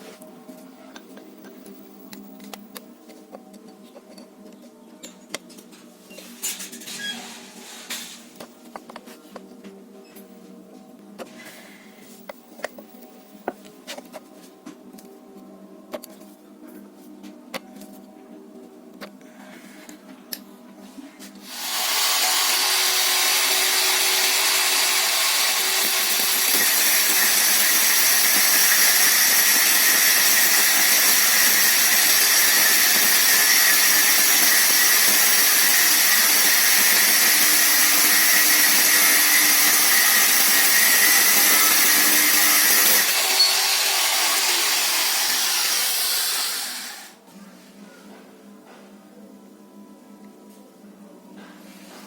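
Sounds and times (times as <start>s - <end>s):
power tool running: 21.4s - 47.2s.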